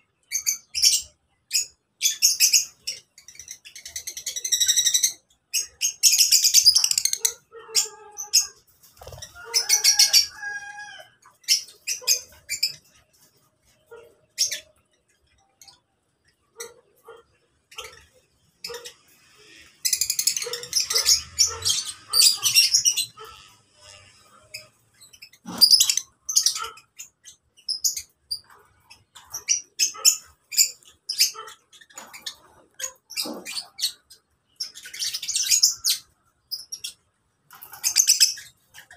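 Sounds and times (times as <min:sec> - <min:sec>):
lovebirds chirping: 0:11.2 - 0:38.9.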